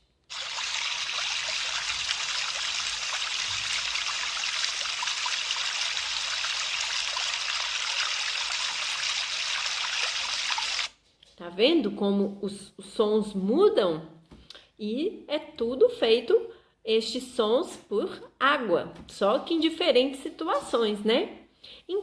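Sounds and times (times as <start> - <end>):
water running and trickling: 0.2 - 10.9.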